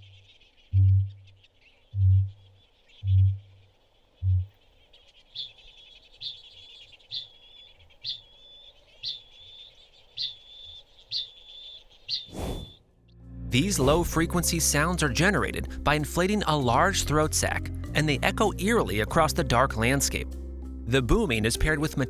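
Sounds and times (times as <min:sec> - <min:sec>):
high metallic bird calls: 0:00.0 - 0:12.8.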